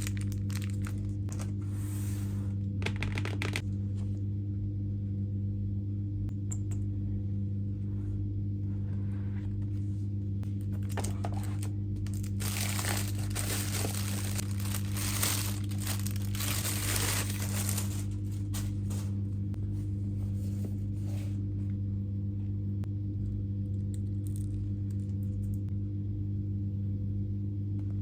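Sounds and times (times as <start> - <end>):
packaging crinkling and rustling: 0.0 - 1.6, 10.7 - 19.2
steady low hum: 0.0 - 28.0.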